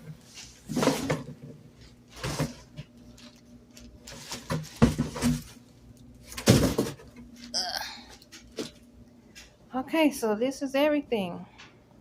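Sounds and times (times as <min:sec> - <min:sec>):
packaging rustling and scraping: 0:00.2 - 0:07.5.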